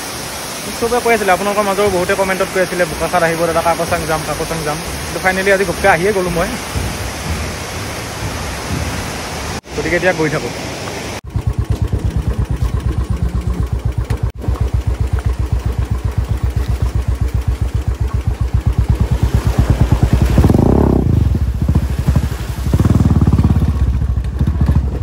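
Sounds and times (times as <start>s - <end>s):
motorcycle engine running: 1.4s - 9.0s, 11.2s - 25.0s.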